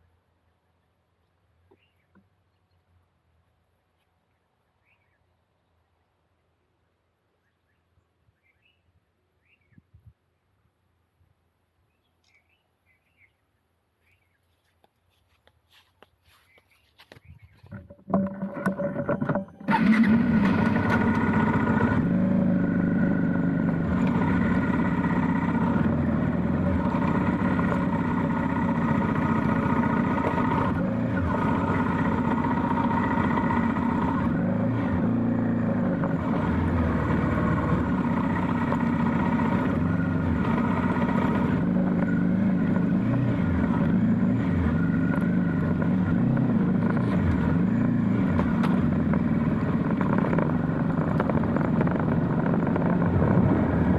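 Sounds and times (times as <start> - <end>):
motorcycle engine revving: 17.8 - 53.9.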